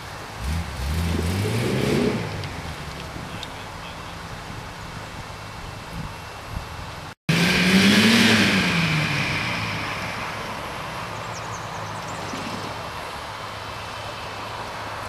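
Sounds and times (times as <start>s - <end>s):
engine running steadily: 0.0s - 15.0s
engine revving hard: 0.3s - 2.8s, 7.3s - 12.8s.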